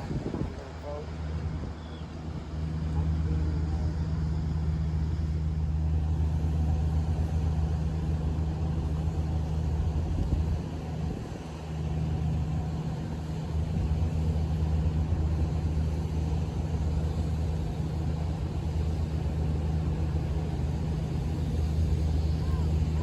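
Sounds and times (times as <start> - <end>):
large engine droning: 0.0 - 23.0.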